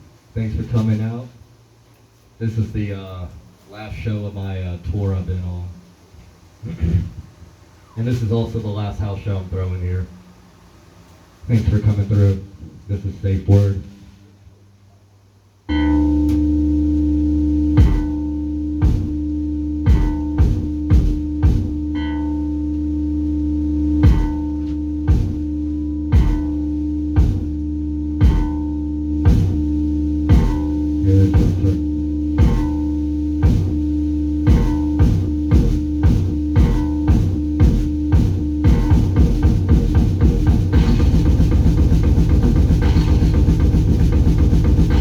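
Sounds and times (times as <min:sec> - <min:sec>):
loud droning chord: 0:15.7 - 0:45.0
hard drum hits: 0:17.8 - 0:18.2, 0:18.8 - 0:19.2, 0:19.9 - 0:22.1, 0:24.0 - 0:24.4, 0:25.1 - 0:25.4, 0:26.1 - 0:26.6, 0:27.2 - 0:27.5, 0:28.2 - 0:28.7, 0:29.3 - 0:29.7, 0:30.3 - 0:31.8, 0:32.4 - 0:33.8, 0:34.4 - 0:45.0.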